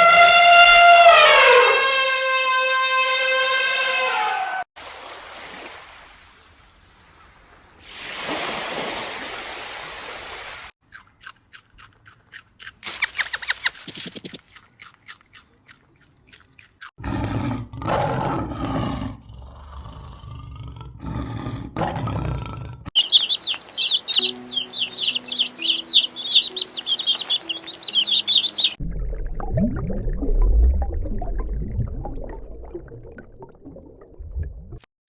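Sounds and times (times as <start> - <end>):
deep animal roars: 17.0 - 22.9.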